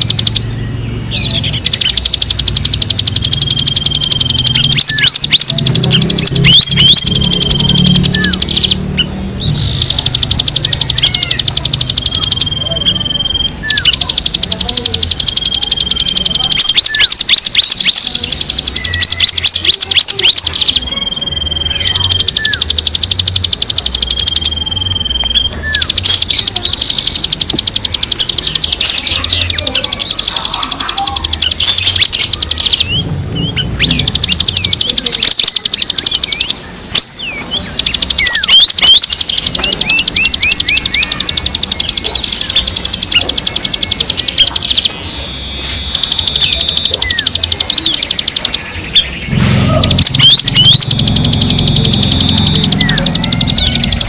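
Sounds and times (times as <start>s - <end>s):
recorded songbird calls: 0.0s - 54.0s.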